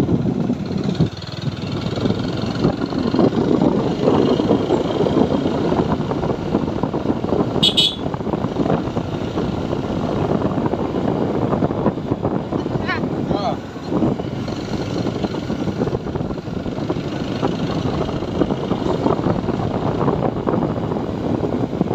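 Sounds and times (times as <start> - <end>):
motorcycle engine running: 0.0 - 12.5
wind on microphone: 0.0 - 21.9.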